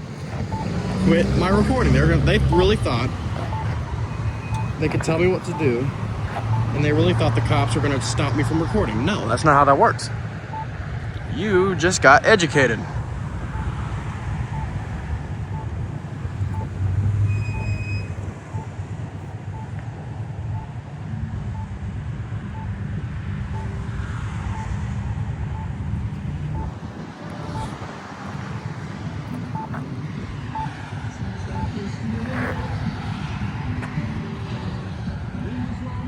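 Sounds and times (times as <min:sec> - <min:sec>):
faint repeating beep: 0:00.0 - 0:08.9, 0:12.8 - 0:15.8, 0:16.4 - 0:18.7, 0:20.6 - 0:20.8, 0:21.5 - 0:21.8, 0:22.5 - 0:22.8, 0:23.5 - 0:27.8, 0:29.3 - 0:36.0
road traffic rumble: 0:00.0 - 0:36.0.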